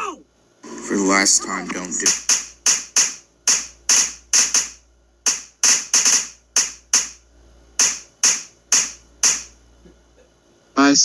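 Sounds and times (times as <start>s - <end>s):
sharp hits: 1.9s - 7.2s.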